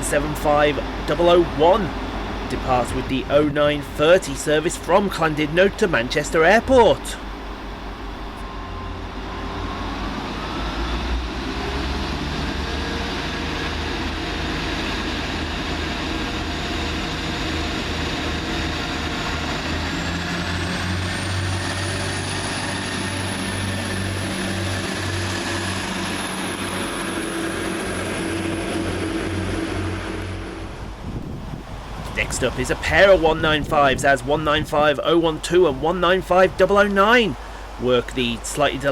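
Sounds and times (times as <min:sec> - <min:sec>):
diesel train engines running: 0:00.0 - 0:38.9
high whine rising in pitch: 0:06.5 - 0:31.9.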